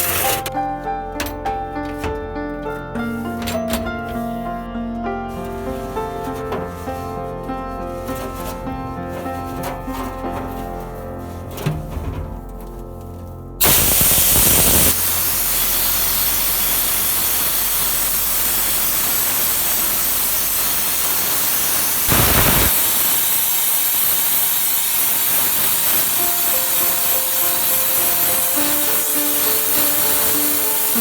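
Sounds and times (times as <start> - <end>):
air blasts: 0.0 - 0.4, 13.6 - 31.0
compressed air hissing: 0.0 - 0.4, 13.6 - 31.0
soft music with held notes: 0.0 - 13.6, 26.4 - 31.0.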